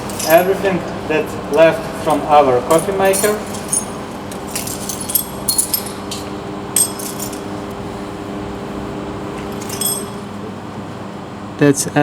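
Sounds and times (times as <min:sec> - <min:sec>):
aluminium pieces clinking: 0:00.0 - 0:07.8, 0:09.4 - 0:10.3
machine hum: 0:00.0 - 0:11.6.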